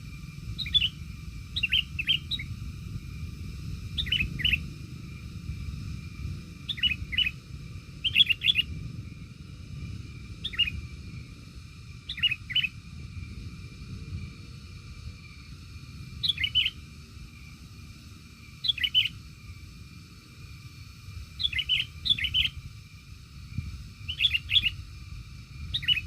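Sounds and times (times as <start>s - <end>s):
small bird chirping: 0.0s - 3.2s, 3.8s - 4.8s, 6.6s - 7.4s, 8.0s - 8.8s, 10.4s - 10.9s, 12.0s - 12.8s, 16.1s - 17.5s, 18.4s - 19.5s, 21.2s - 22.7s, 23.5s - 26.0s
steady low rumble: 0.0s - 26.0s.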